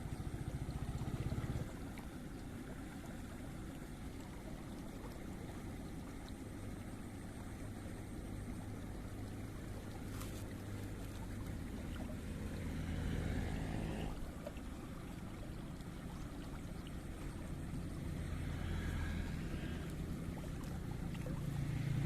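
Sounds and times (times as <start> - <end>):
small engine running: 0.0 - 2.0, 11.6 - 14.2, 17.2 - 22.0.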